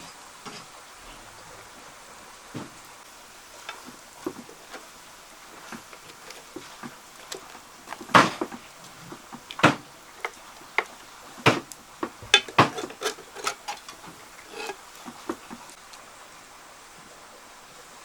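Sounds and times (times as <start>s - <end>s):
hard objects knocking and clattering: 3.6s - 15.7s.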